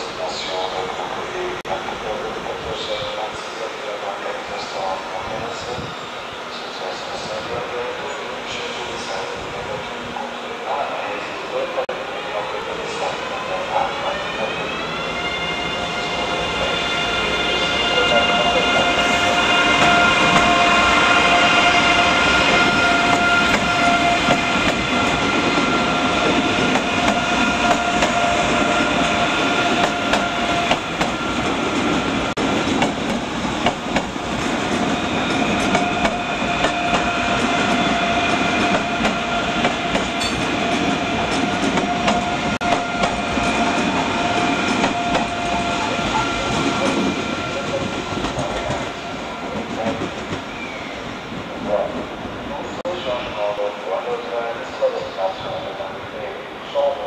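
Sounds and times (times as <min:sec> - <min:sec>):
electric train whine: 0:04.8 - 0:56.8
train wheels rumbling: 0:12.6 - 0:52.7.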